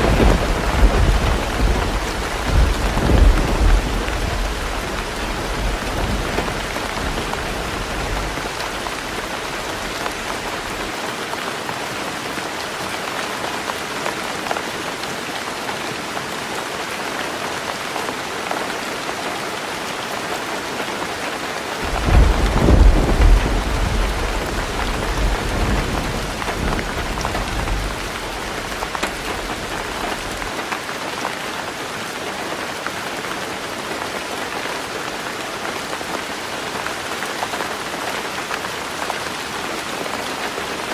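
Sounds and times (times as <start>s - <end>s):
low thunder rumble: 0.0s - 10.8s, 21.8s - 30.5s
heavy rain on a roof: 0.0s - 40.9s.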